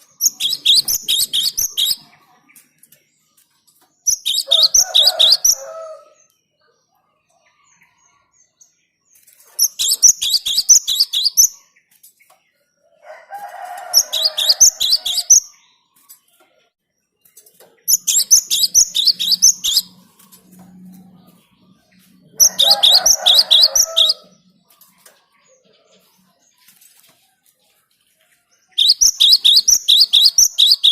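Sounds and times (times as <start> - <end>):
bird singing high notes: 18.0 - 20.1, 28.8 - 30.9.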